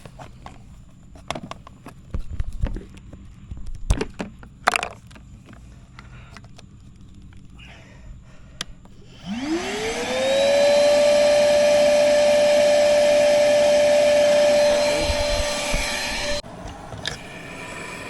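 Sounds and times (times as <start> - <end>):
shop vac motor whining: 8.6 - 18.0
rush of air: 14.4 - 18.0.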